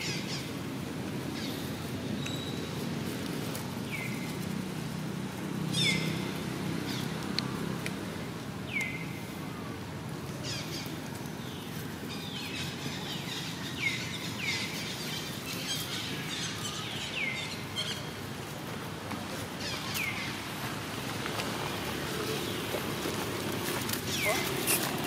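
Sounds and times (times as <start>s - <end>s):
low background noise: 0.0s - 25.0s
birds chirping: 5.7s - 7.2s, 8.6s - 9.2s, 10.4s - 18.4s, 19.5s - 25.0s.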